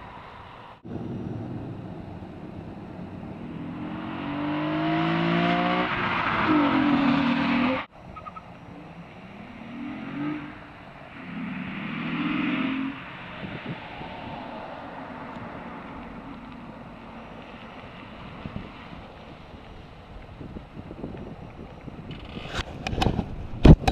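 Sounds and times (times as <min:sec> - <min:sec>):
road and wind noise: 0:00.0 - 0:23.9
distant car engine accelerating: 0:00.8 - 0:19.3.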